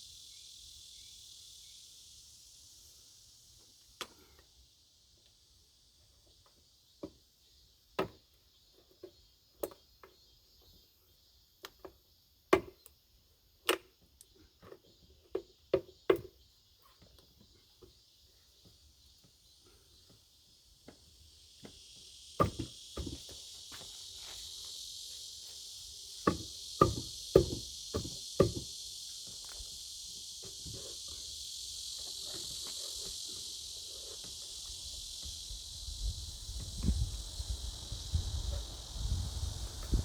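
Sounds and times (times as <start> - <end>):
faint high hiss: 19.0 - 40.0.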